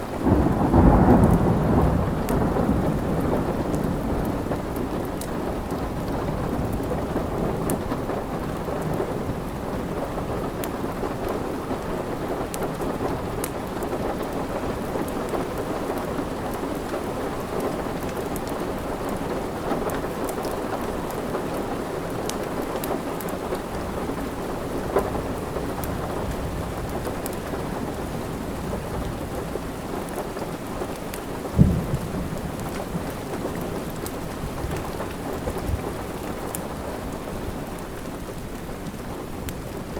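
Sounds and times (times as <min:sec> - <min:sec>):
steady rain: 0:00.0 - 0:39.9
wood fire crackling: 0:10.5 - 0:39.9.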